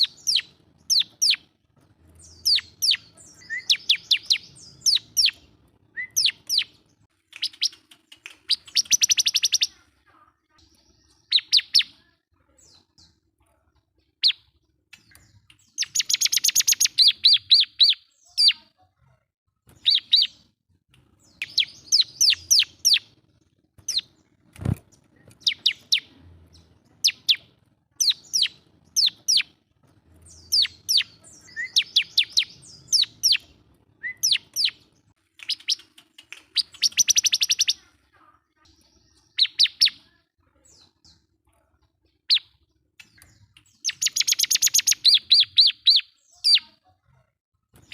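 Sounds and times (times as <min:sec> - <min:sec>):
bird singing sharp high chirps: 0:00.0 - 0:01.5, 0:02.2 - 0:09.8, 0:10.7 - 0:12.0, 0:14.2 - 0:18.7, 0:19.7 - 0:20.5, 0:21.2 - 0:23.1, 0:23.8 - 0:29.6, 0:30.2 - 0:37.9, 0:38.8 - 0:40.1, 0:42.3 - 0:46.8.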